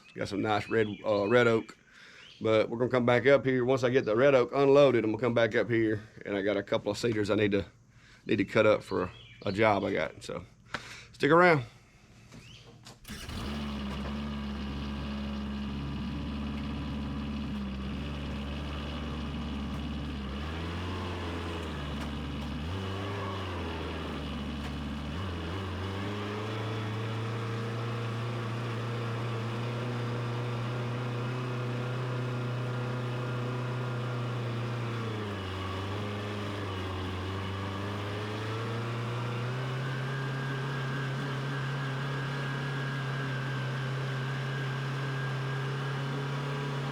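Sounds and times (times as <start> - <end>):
tractor engine running: 13.0 - 46.9.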